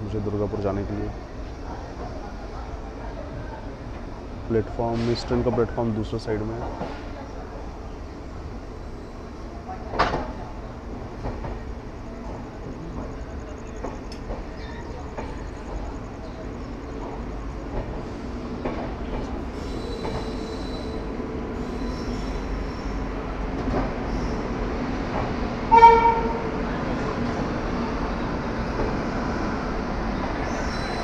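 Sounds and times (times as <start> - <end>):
train wheels rumbling on rails: 0.0 - 31.0
train horn blast: 25.7 - 26.6.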